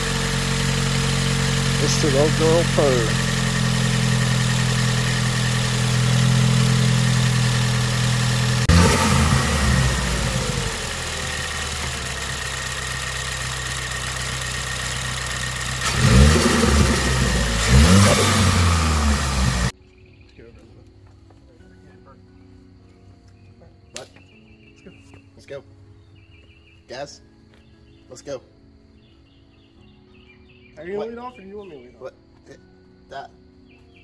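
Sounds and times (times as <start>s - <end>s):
car engine idling: 0.0s - 19.7s
engine revving: 0.0s - 19.7s.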